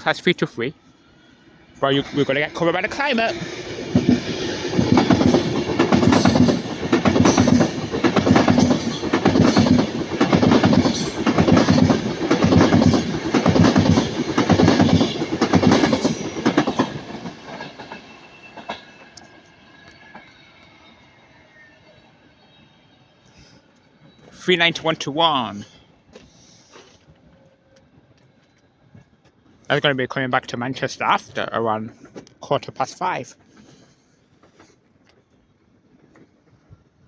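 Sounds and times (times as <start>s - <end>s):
train wheels clattering over rail joints: 3.4s - 19.0s.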